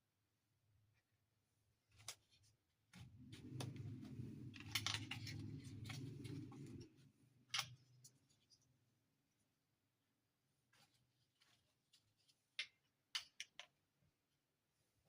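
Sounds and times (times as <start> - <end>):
rubbing scraping noise: 3.1 - 7.1.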